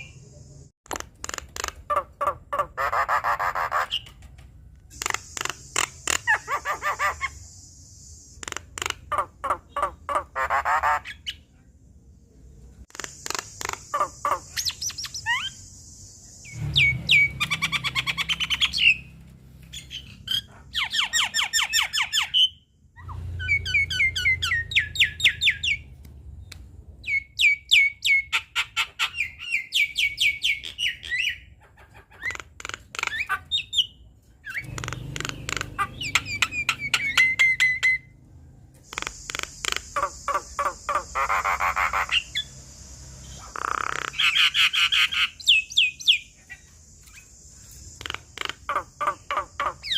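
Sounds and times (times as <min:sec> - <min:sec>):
bird chattering harshly: 0:00.9 - 0:04.1, 0:04.9 - 0:07.4, 0:08.4 - 0:11.4, 0:12.9 - 0:15.6, 0:27.7 - 0:33.9, 0:34.5 - 0:38.0, 0:38.9 - 0:42.5, 0:43.3 - 0:47.2, 0:47.9 - 0:49.9.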